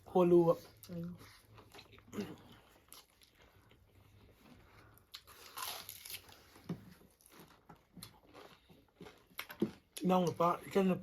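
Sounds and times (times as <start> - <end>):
mouth clicks and chewing: 0.7 - 10.4
crunchy bite: 5.1 - 6.4.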